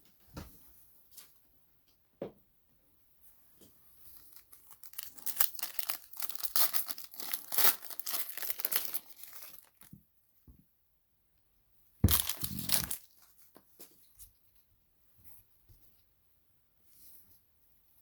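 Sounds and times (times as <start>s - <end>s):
plastic wrapping crinkling: 4.1s - 10.0s, 12.0s - 13.7s.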